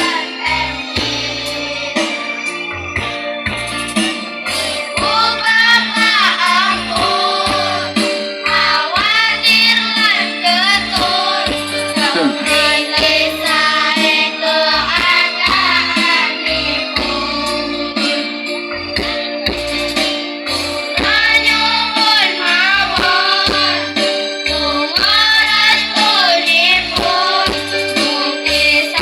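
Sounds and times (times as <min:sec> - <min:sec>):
girls choir singing: 0:00.0 - 0:02.0, 0:05.0 - 0:16.3, 0:21.0 - 0:23.9, 0:24.8 - 0:28.9
instrumental backing with pulsing bass: 0:00.0 - 0:29.0.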